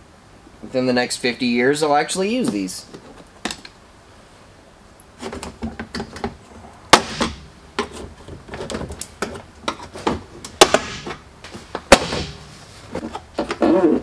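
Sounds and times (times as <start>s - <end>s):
loud sharp cracks: 6.9s - 7.5s, 10.6s - 11.2s, 11.9s - 12.5s.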